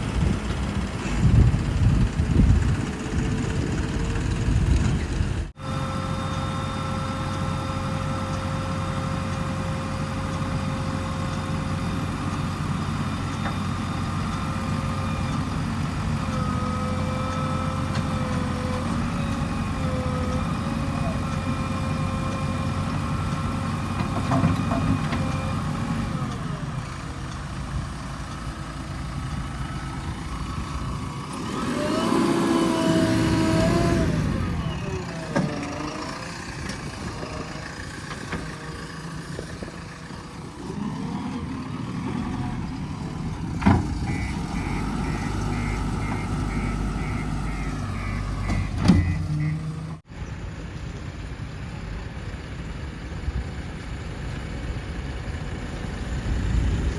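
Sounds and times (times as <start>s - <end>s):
diesel engines running: 0.0s - 56.9s
high reversing beeps: 44.0s - 50.0s.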